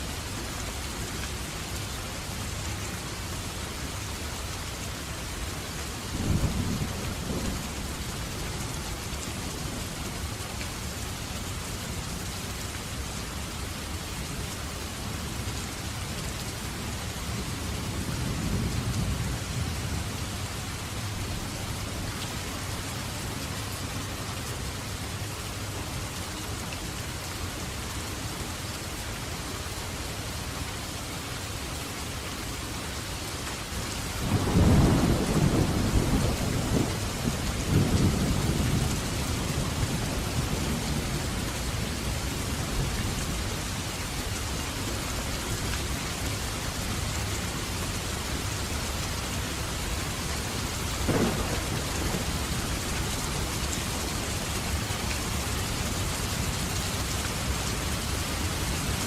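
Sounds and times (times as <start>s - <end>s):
steady rain: 0.0s - 59.0s
thunder rumbling: 51.0s - 54.0s.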